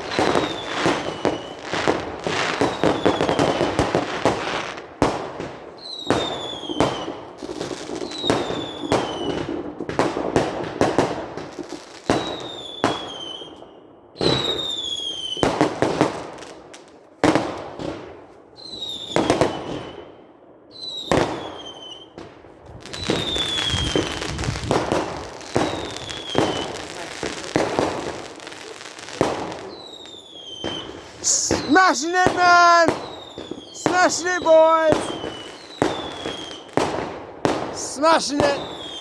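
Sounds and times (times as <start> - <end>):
fireworks whistling: 0.0 - 3.9, 22.9 - 27.6, 29.0 - 39.0
fireworks banging and crackling: 0.0 - 13.5, 14.2 - 20.0, 20.9 - 39.0.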